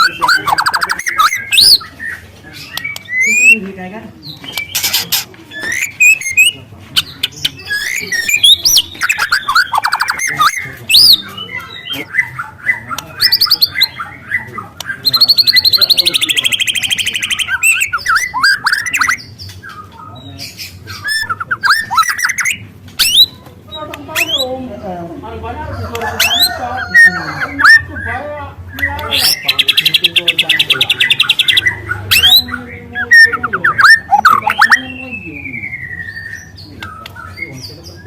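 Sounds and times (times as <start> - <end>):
bird singing whistles: 0.0 - 1.8, 2.8 - 3.6, 5.5 - 6.6, 7.7 - 11.2, 15.1 - 19.2, 21.0 - 23.4, 33.0 - 36.6
fast bird trill: 0.0 - 2.2, 2.9 - 3.6, 4.5 - 19.3, 20.9 - 23.4, 24.0 - 24.6, 26.0 - 36.6.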